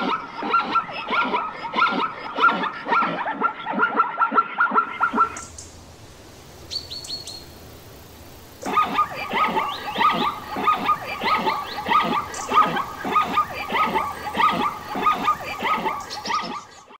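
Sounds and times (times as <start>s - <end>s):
zebra yelping barks: 0.0s - 5.6s, 8.1s - 17.0s.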